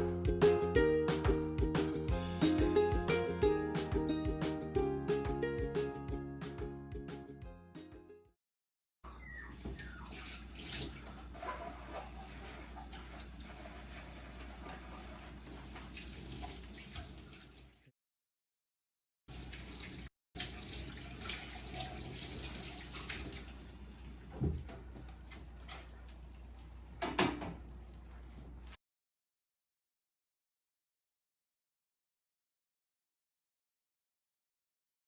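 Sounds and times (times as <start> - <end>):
soft water sound: 9.3 - 17.9, 19.3 - 28.8.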